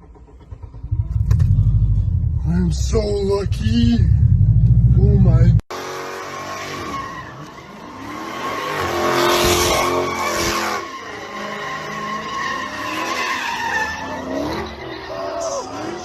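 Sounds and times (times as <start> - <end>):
car engine revving: 0.0 - 16.0
tyres squealing in a skid: 6.2 - 16.0.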